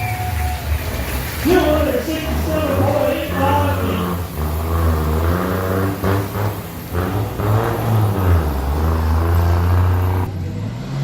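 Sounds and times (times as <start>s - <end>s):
diesel truck engine idling: 0.0s - 10.6s.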